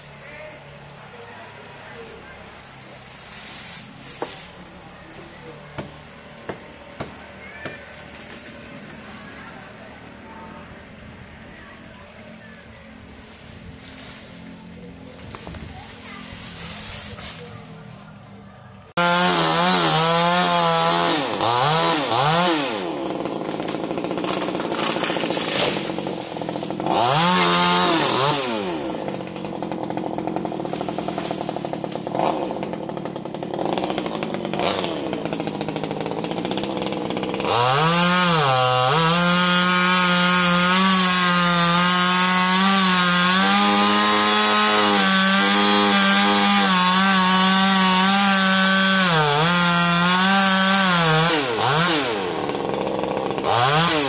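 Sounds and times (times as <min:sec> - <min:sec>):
chainsaw revving and cutting wood: 0:03.8 - 0:17.6, 0:18.8 - 0:54.0.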